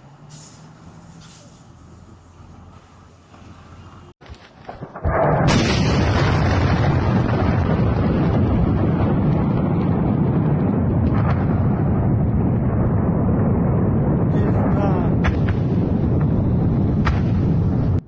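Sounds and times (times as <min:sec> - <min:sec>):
explosion blast: 0:04.3 - 0:18.0
loud sustained rumble: 0:05.0 - 0:18.0.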